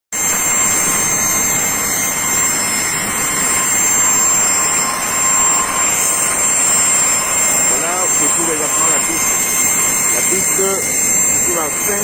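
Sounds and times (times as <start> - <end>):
aircraft turbine engine running: 0.1 - 12.0.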